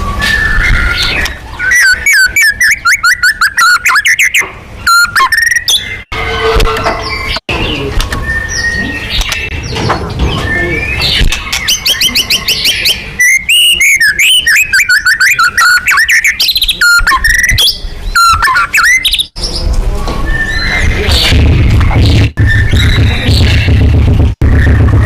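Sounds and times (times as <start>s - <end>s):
bird song whistles and trills: 0.0s - 6.1s, 6.9s - 23.8s
other birds chirping: 0.0s - 24.9s
low rumble: 20.9s - 25.0s.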